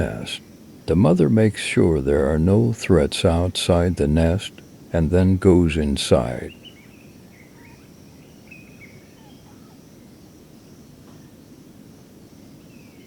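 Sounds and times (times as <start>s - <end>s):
low background rumble: 0.0s - 6.5s.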